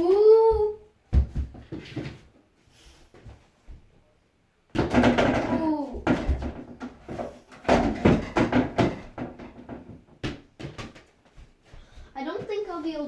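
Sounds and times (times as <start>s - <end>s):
ball bouncing off wall and floor: 0.0s - 2.4s, 4.7s - 12.6s.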